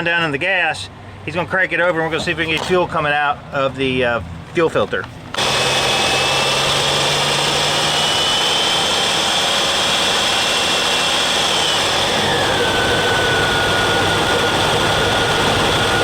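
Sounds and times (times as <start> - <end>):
engine turning over with whine: 5.2 - 16.0.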